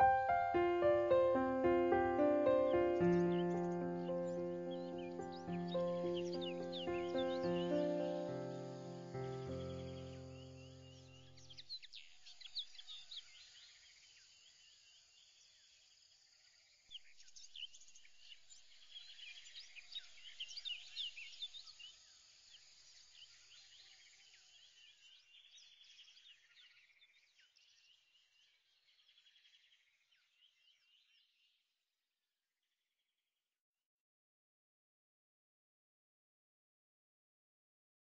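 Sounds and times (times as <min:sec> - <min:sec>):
held music chord: 0:00.0 - 0:10.8
small birds chirping: 0:00.0 - 0:15.7, 0:16.9 - 0:31.6.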